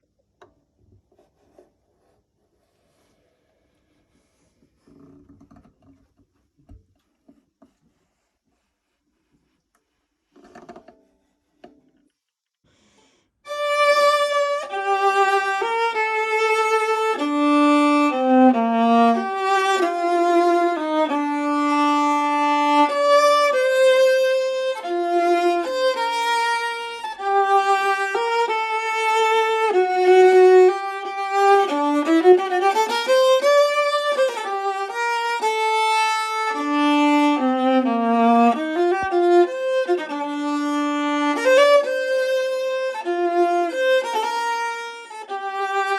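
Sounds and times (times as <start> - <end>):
bowed viola melody: 13.5 - 45.9.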